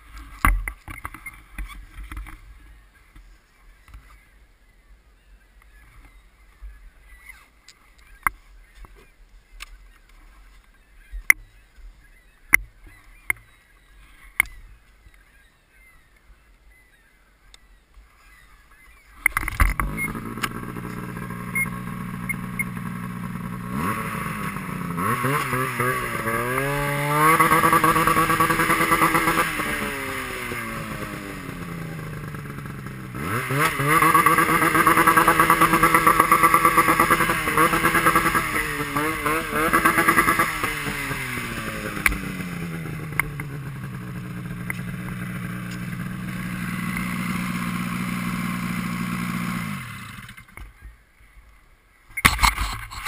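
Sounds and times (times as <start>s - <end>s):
motorcycle engine revving: 19.2s - 50.8s.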